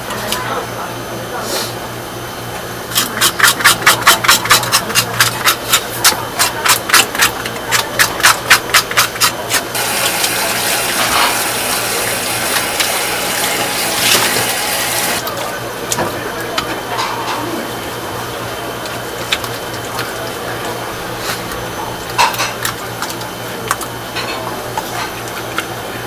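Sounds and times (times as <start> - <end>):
water running: 9.5 - 15.2.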